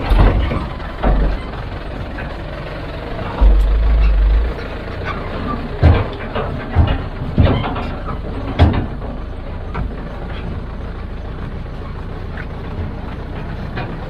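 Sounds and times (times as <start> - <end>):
heavy machinery engine running: 0.0 - 14.0
loud knocks: 3.3 - 5.1.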